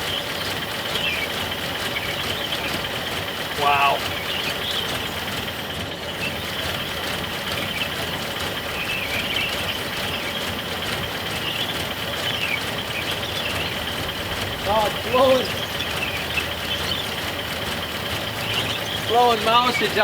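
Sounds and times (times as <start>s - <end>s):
pickup engine idling: 0.0s - 20.0s.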